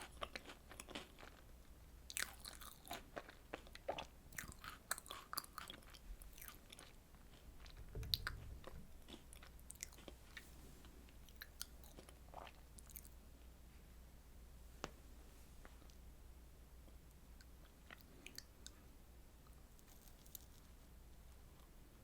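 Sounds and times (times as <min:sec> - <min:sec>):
low thump: 0:07.8 - 0:08.9.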